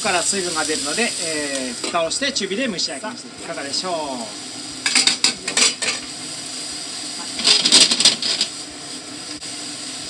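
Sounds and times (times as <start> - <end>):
food sizzling: 0.0 - 10.0
utensil scraping frying pan: 4.8 - 6.1, 7.2 - 8.7.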